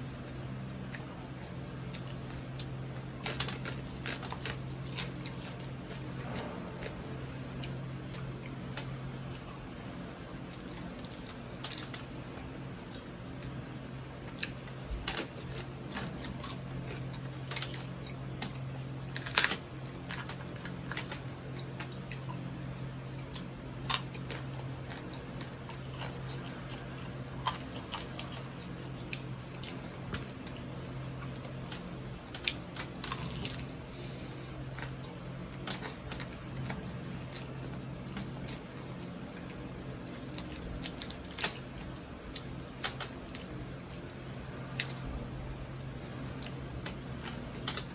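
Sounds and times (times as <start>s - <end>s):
chewing and crunching food: 0.0s - 47.9s
steady low hum: 0.0s - 47.9s.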